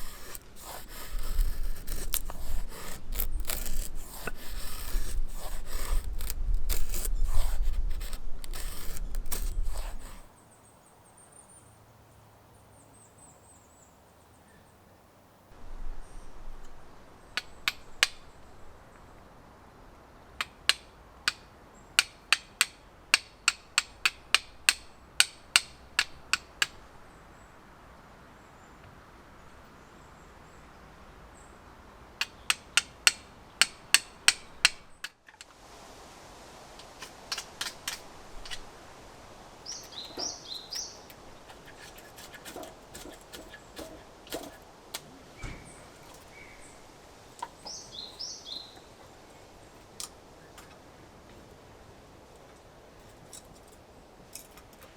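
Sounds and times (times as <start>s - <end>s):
sharp evenly spaced knocks: 22.0s - 26.8s, 32.2s - 35.2s, 41.5s - 44.6s
bird chirps: 39.6s - 41.9s, 47.5s - 49.0s.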